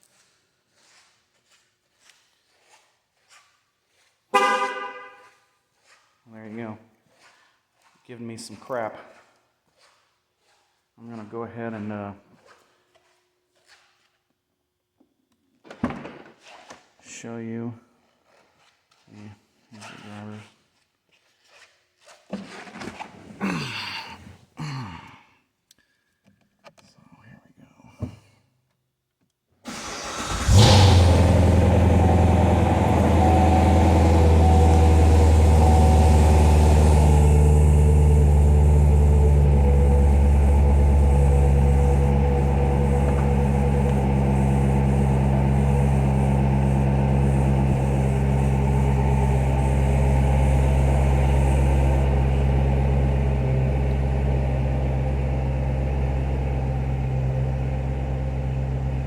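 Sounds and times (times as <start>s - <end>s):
car engine starting and idling: 4.4s - 5.1s, 29.7s - 59.0s.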